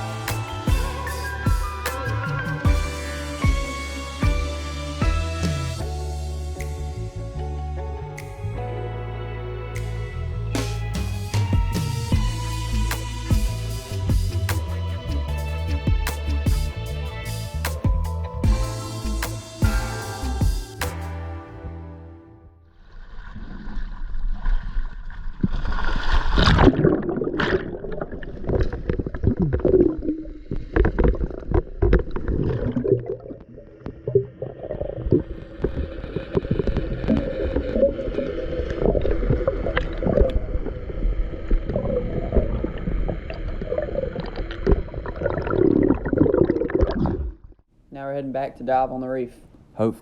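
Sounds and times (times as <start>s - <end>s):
water sloshing and gurgling: 22.7s - 47.7s.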